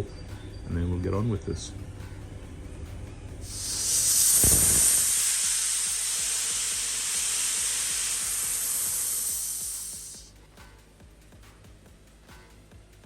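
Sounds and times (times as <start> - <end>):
compressed air hissing: 3.4 - 10.3.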